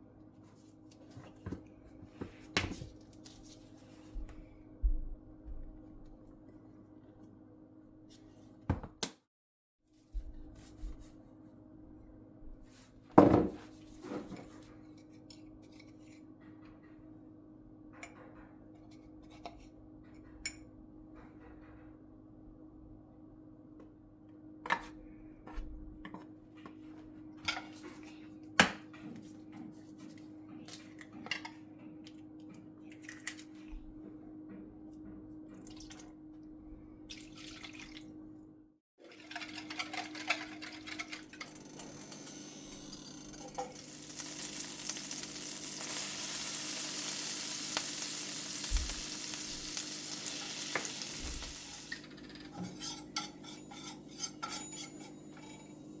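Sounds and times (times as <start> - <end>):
utensils clinking on dishes: 39.1 - 56.0
steady hiss: 43.8 - 52.0.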